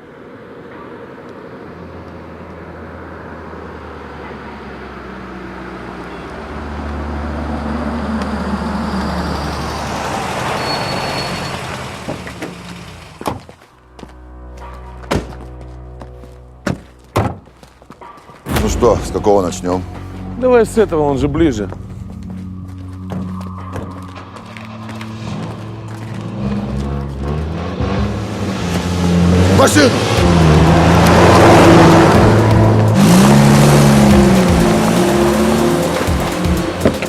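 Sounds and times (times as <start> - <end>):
vehicle sound: 0.0 - 37.0
low film music: 12.5 - 37.0.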